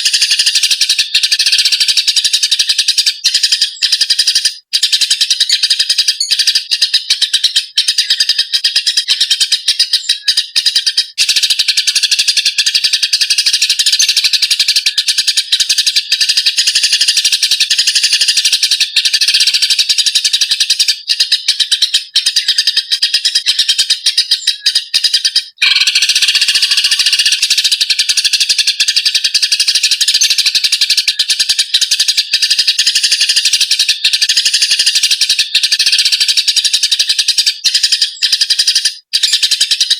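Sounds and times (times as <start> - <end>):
sparrows chirping and chattering: 0.0 - 39.9.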